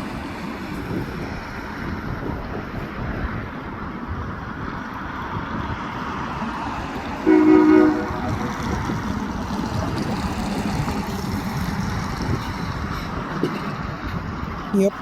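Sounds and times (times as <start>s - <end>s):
wind: 0.0s - 15.0s
locomotive air horn: 7.2s - 9.0s.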